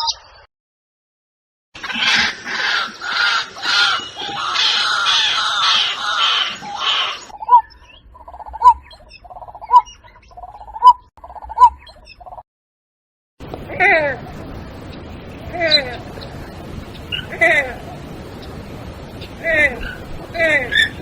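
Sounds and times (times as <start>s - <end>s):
bird trilling: 1.8s - 12.4s, 19.2s - 21.0s
harsh water-bird chorus: 1.8s - 12.4s, 13.4s - 21.0s
repeated bird call: 1.8s - 12.4s, 13.6s - 21.0s.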